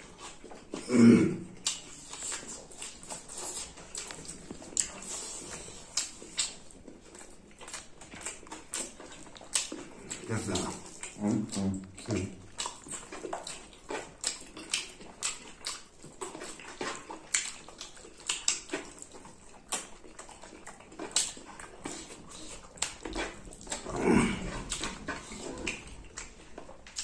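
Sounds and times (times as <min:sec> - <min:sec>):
chewing and lip-smacking: 0:00.0 - 0:27.0.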